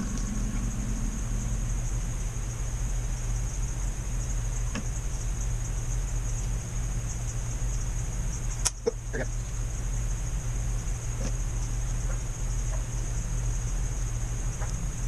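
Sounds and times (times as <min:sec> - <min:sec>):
faint high whine: 0:00.0 - 0:15.0
low electrical hum with hiss: 0:00.0 - 0:15.0.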